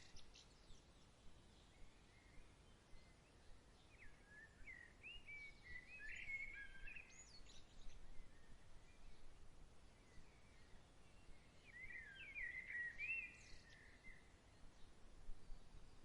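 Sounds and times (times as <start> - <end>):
songbird chirps: 0.0 - 16.0.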